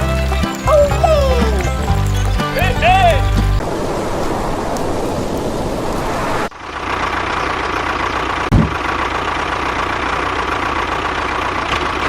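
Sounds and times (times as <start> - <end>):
tractor engine idling: 0.0 - 4.2, 5.8 - 12.0
short thump: 8.5 - 8.8.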